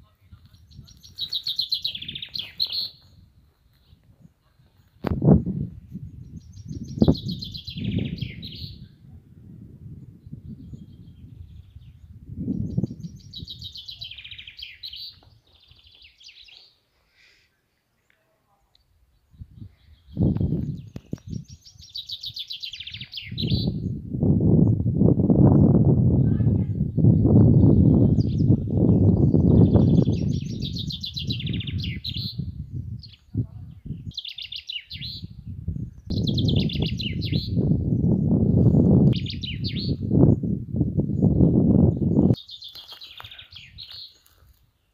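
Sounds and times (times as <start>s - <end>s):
songbird singing trilled notes: 0.5s - 3.3s, 5.3s - 9.0s, 10.0s - 16.8s, 18.8s - 24.0s, 27.0s - 44.2s
songbird trilling: 0.6s - 3.2s, 6.2s - 8.9s, 20.0s - 23.9s, 29.2s - 32.4s, 33.0s - 35.4s, 36.0s - 37.6s, 39.2s - 40.2s.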